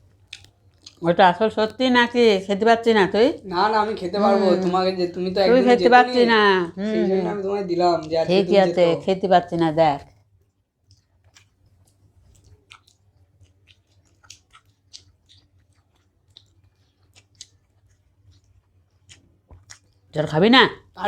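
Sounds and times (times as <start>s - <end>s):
faint chewing: 0.0s - 2.2s, 7.2s - 21.0s
wet mouth clicks: 10.1s - 20.0s.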